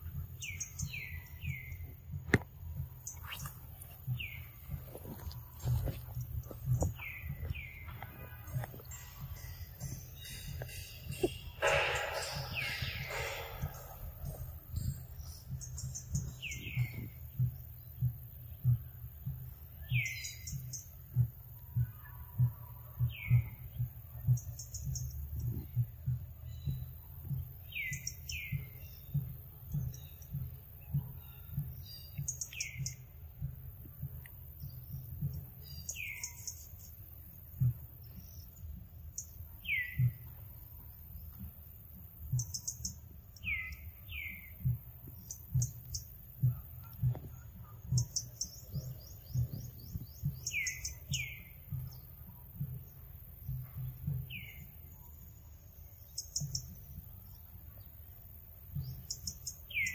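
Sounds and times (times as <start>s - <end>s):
soft low thumps: 0.0s - 59.9s
high bird trills: 6.9s - 17.1s
downward-sliding bird chirps: 9.0s - 15.4s.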